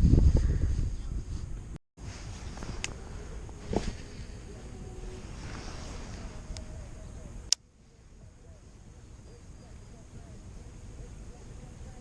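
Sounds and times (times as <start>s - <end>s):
wind buffeting microphone: 0.0s - 7.5s.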